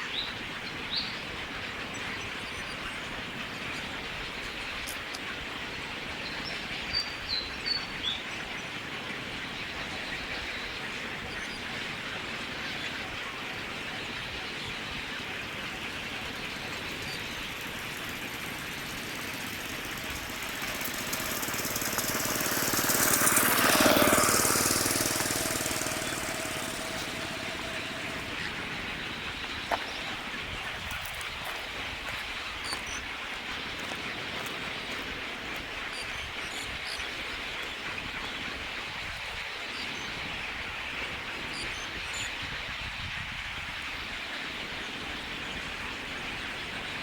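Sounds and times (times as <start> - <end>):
outdoor background noise: 0.0 - 47.0
motor vehicle passing by: 15.2 - 30.8.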